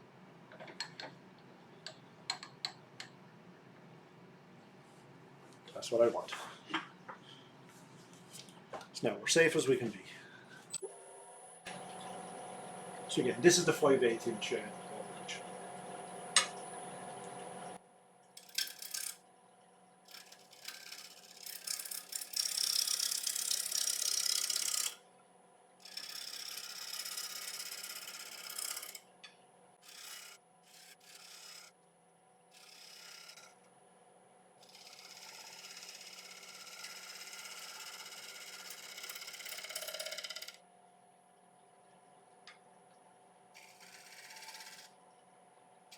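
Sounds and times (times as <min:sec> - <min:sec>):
faint lathe hum: 0:07.1 - 0:25.0, 0:25.7 - 0:31.8, 0:32.4 - 0:42.6, 0:43.4 - 0:45.9
gouge cutting wood on lathe: 0:20.1 - 0:25.0, 0:29.8 - 0:31.7, 0:32.6 - 0:33.5, 0:34.6 - 0:40.6, 0:43.6 - 0:44.9.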